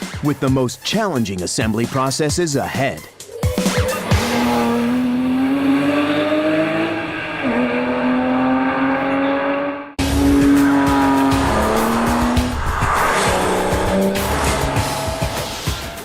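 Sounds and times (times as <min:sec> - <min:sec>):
sports car engine accelerating: 0:03.8 - 0:16.0.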